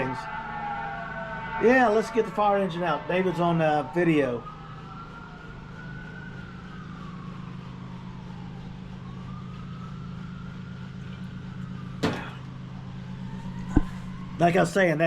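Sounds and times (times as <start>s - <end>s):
siren wailing: 0.0s - 15.0s
steady low hum: 4.4s - 14.9s.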